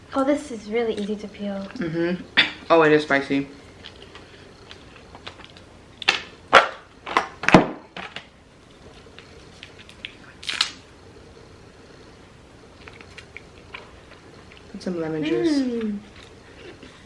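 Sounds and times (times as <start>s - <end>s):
shellfish shells snapping: 9.6s - 10.8s.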